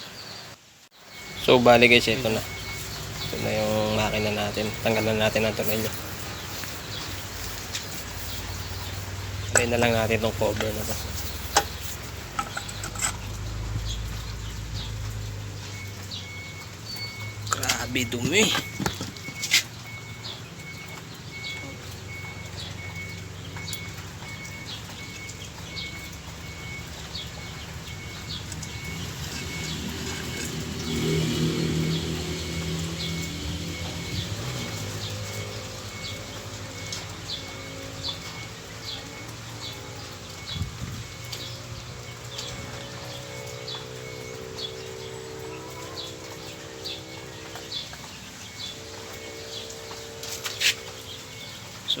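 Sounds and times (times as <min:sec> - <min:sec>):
bird-like chirps: 0:00.0 - 0:52.0
high electronic beep: 0:15.7 - 0:23.0.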